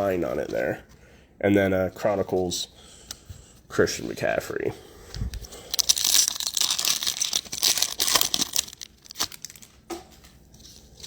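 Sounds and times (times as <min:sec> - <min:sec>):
plastic wrapper crinkling and tearing: 0:05.3 - 0:09.8.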